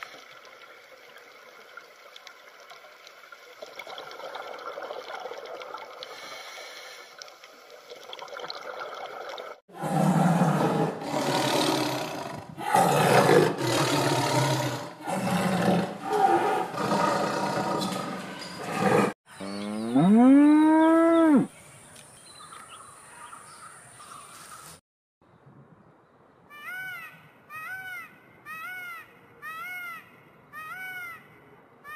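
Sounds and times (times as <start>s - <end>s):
tiger growling: 9.7s - 19.2s
cow mooing: 15.1s - 21.5s.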